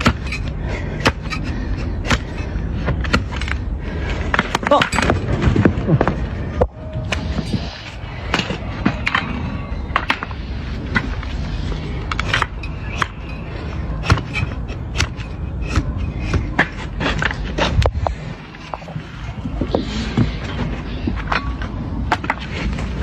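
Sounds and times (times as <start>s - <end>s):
hoof being cut and scraped: 0.0s - 23.0s
steady low rumble: 0.0s - 23.0s.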